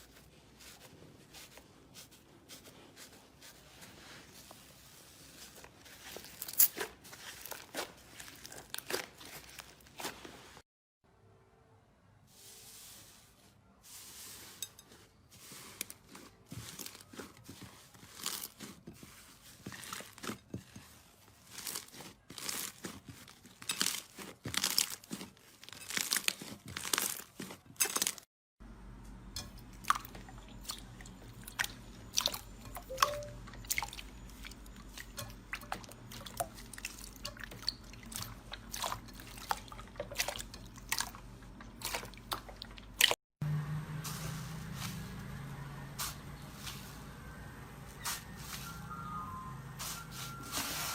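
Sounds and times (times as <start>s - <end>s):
slime crackling and popping: 21.5s - 28.2s.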